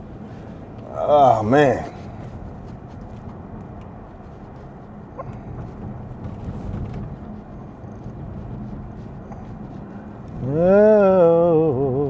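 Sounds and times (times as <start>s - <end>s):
faint engine hum: 0.0s - 12.0s
road and tyre rumble: 0.0s - 12.0s.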